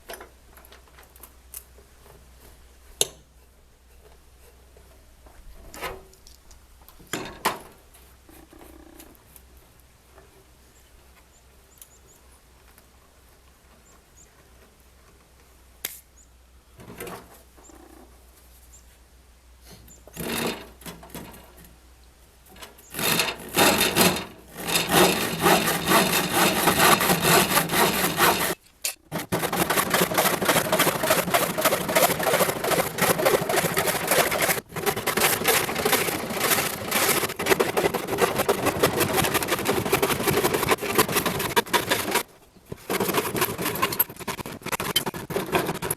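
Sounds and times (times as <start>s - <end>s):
tool rasping through wood: 22.9s - 45.9s.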